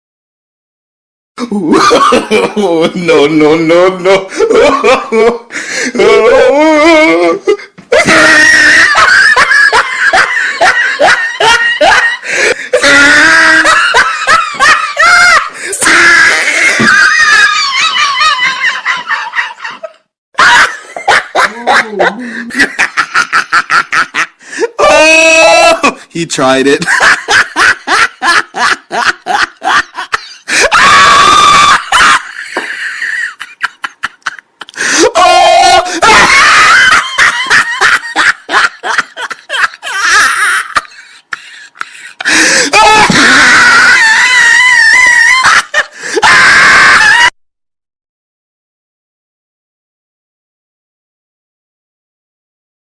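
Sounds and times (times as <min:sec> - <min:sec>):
gasping breaths: 0:05.5 - 0:06.0, 0:12.2 - 0:12.8, 0:22.1 - 0:22.6, 0:34.6 - 0:35.1, 0:41.0 - 0:42.8, 0:45.9 - 0:46.2
high-pitched shrieking laughter: 0:06.0 - 0:26.0, 0:27.0 - 0:47.4.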